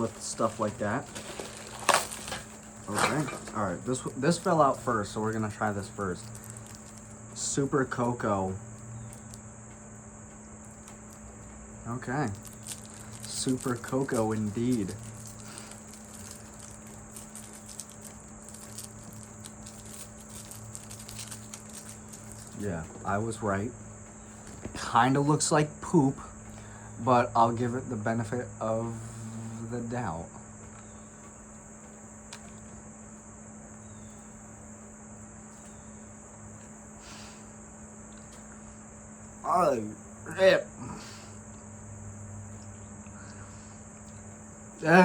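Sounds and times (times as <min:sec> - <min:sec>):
candy wrapper crinkling: 0:00.0 - 0:03.3, 0:04.0 - 0:07.2, 0:12.2 - 0:22.6
short rustle: 0:00.0 - 0:07.2
steady low hum: 0:00.0 - 0:45.0
low hum: 0:26.2 - 0:31.7.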